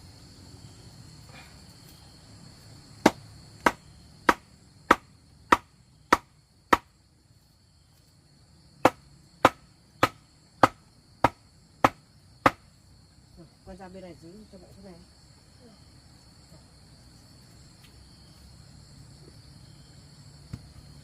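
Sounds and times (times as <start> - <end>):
hand tool striking wood: 3.0 - 6.9, 8.8 - 12.6.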